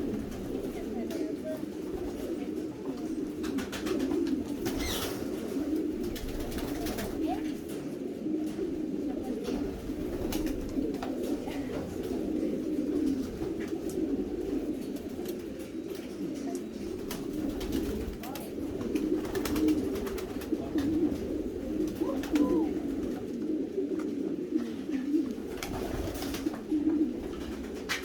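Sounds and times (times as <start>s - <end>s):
pigeons cooing: 0.0s - 28.0s
wing flutters and clicks: 3.4s - 5.3s.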